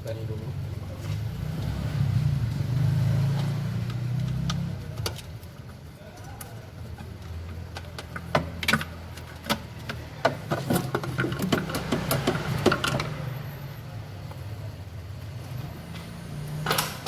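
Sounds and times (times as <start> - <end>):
clicks and rattles of metal and plastic: 3.9 - 13.3.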